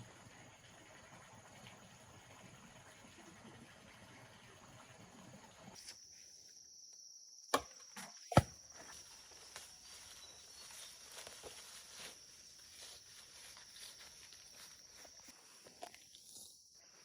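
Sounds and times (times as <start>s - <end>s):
high insect trill: 5.7s - 17.0s.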